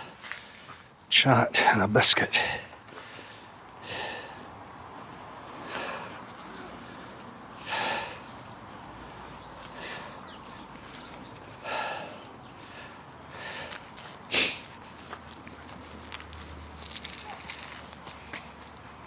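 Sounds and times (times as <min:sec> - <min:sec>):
person breathing heavily: 0:02.4 - 0:04.6, 0:05.6 - 0:08.4, 0:11.6 - 0:14.7.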